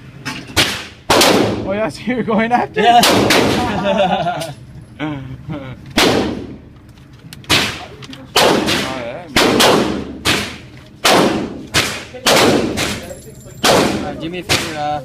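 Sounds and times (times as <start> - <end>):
gunshots with ringing echo: 0.6 - 1.7, 3.0 - 3.7, 6.0 - 6.7, 7.5 - 14.8.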